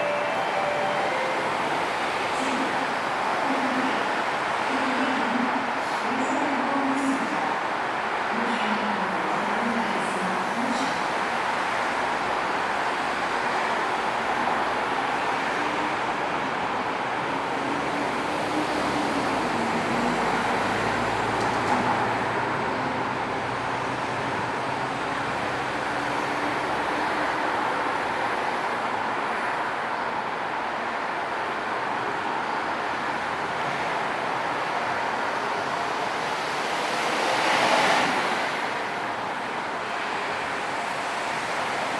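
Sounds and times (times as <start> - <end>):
train wheels rumbling on rail: 9.2 - 41.9
faint low inverter whine: 27.7 - 34.8.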